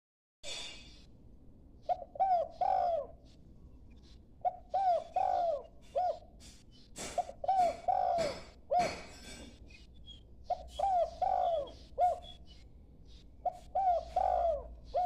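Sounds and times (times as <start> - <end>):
young dove cooing: 1.8 - 3.3, 4.0 - 6.4, 7.0 - 9.1, 10.4 - 12.4, 13.4 - 15.0.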